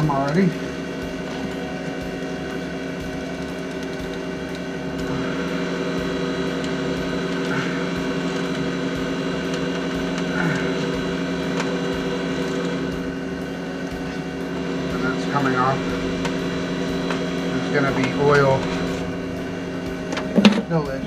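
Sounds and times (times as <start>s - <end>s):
steady machinery hum: 0.0s - 21.0s.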